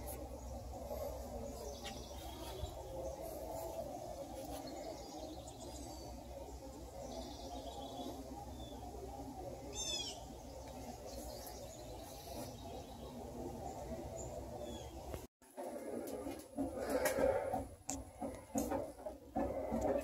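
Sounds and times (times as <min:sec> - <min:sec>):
faint songbird chirps: 0:00.2 - 0:15.2.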